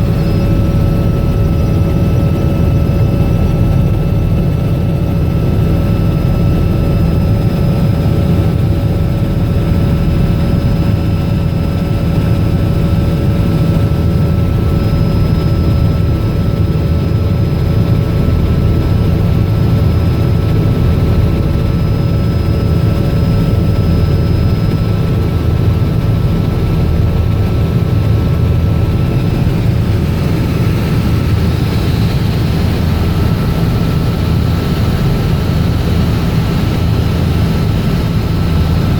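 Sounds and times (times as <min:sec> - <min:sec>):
helicopter engine and rotor: 0:00.0 - 0:38.9.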